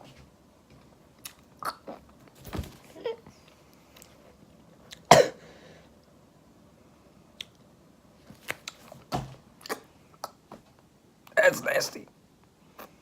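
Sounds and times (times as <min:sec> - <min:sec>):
person coughing outburst: 0:05.1 - 0:05.4.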